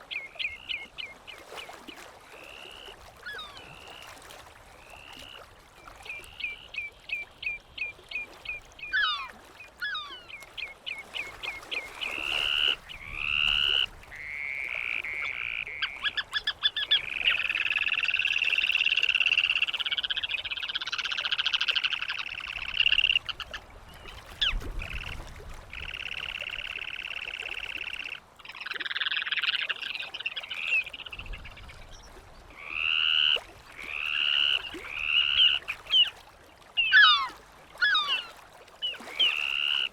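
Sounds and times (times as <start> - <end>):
gulls calling: 6.3 - 23.6, 25.7 - 36.2, 36.8 - 39.9.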